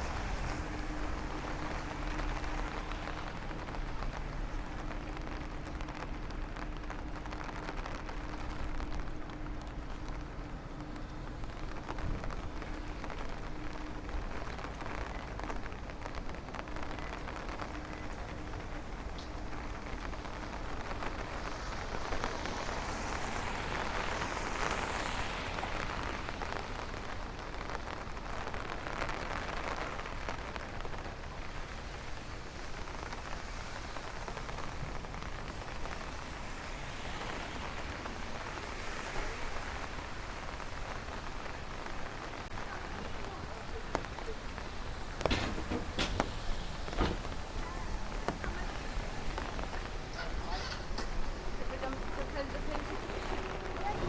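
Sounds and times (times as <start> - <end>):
rain on an umbrella: 0.0 - 54.0.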